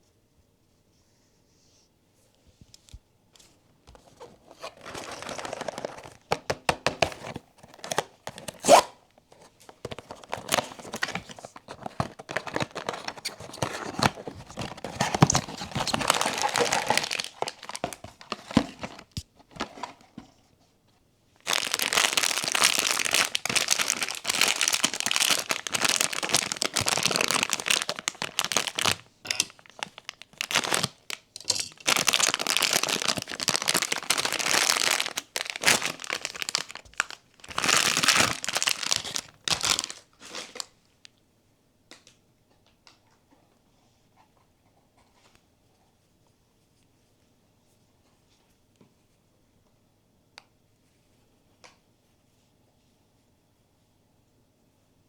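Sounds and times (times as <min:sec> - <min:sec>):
packaging torn open and crinkled: 0:04.5 - 0:09.0, 0:09.7 - 0:19.9, 0:21.4 - 0:40.7.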